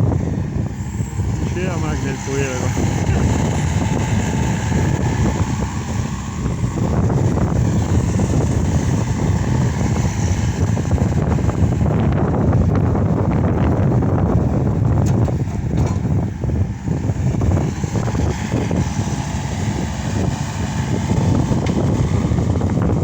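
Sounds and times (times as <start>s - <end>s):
diesel engine running: 0.0s - 23.0s
knocks and rattles: 15.0s - 16.2s.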